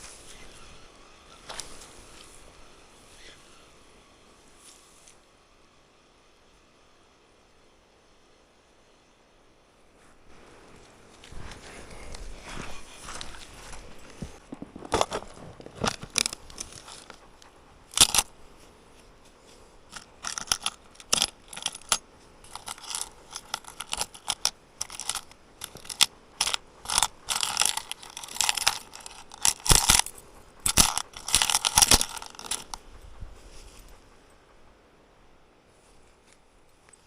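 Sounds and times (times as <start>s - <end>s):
small hard objects clinking: 13.0s - 18.3s, 19.9s - 32.8s.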